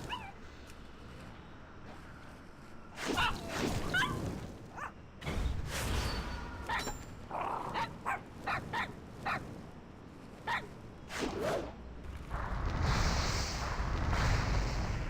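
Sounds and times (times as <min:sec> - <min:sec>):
small animal yipping: 0:00.0 - 0:00.4, 0:03.0 - 0:04.9, 0:10.4 - 0:10.8
steady rushing noise: 0:07.6 - 0:15.0.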